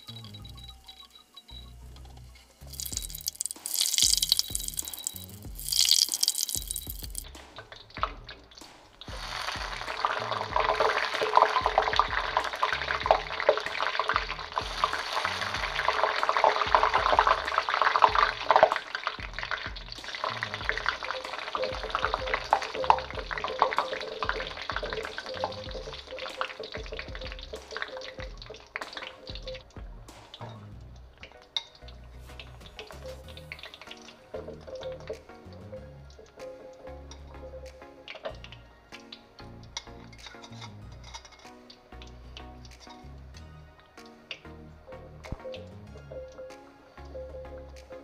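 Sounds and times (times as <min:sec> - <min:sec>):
pork skin crackling in hot oil: 0:02.2 - 0:35.4.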